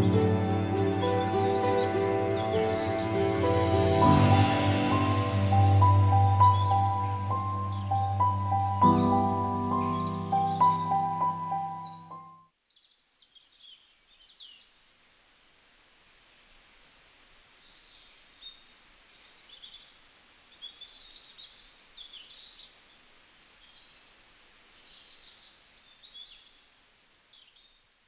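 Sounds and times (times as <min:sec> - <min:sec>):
birds chirping: 0:00.0 - 0:15.0
steady background hiss: 0:00.0 - 0:28.0.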